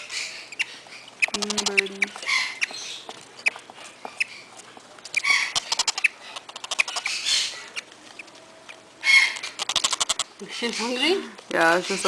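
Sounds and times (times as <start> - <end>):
parrots chirping: 0.0 - 12.0
rapid sharp clicks: 5.6 - 7.1, 9.3 - 10.3.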